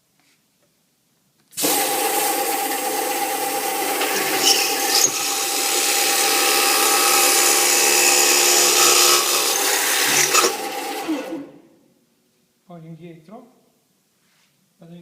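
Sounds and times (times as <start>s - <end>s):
drill bit grinding metal: 1.8s - 11.4s
spindle motor humming: 2.0s - 11.5s.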